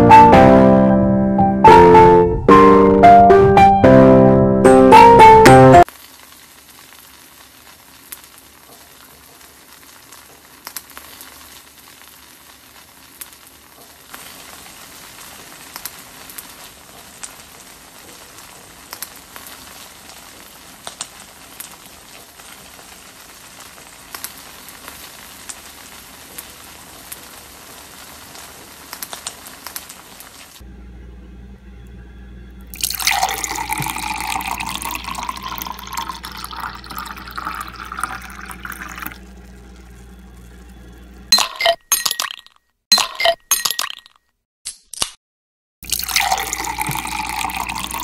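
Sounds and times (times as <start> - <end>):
cheese sizzling in a pan: 5.8 - 30.6
sharp pops and crackles: 5.8 - 30.6.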